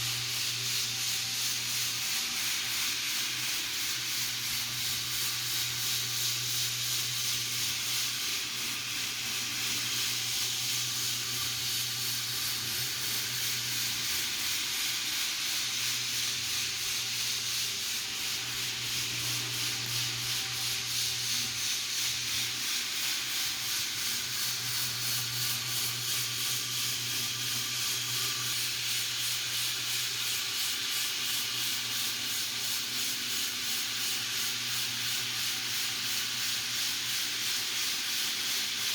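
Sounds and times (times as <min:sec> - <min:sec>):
electric motor hum: 0:00.0 - 0:29.5
floor sander sanding: 0:00.0 - 0:38.9.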